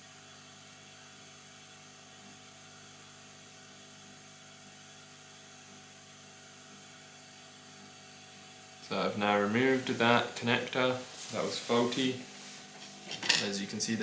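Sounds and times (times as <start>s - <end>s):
low electrical hum: 0.0s - 14.0s
faint hiss: 8.9s - 12.9s.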